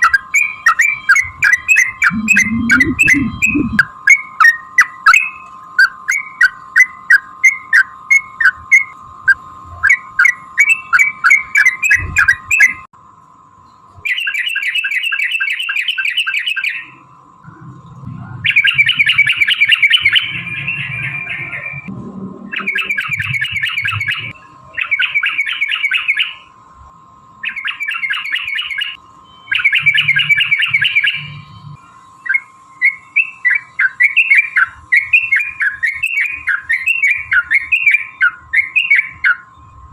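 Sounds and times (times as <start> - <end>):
steady high hum: 0.0 - 4.8, 16.8 - 36.6.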